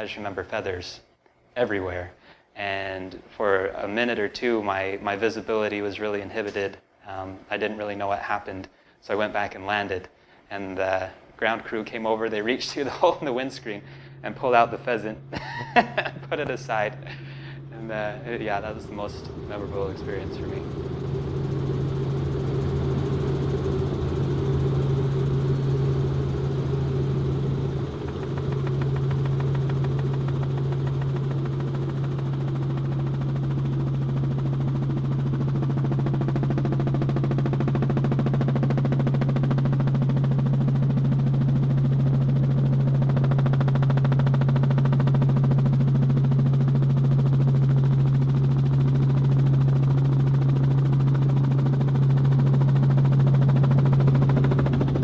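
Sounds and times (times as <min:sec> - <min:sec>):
helicopter engine and rotor hum: 0:11.8 - 0:55.0.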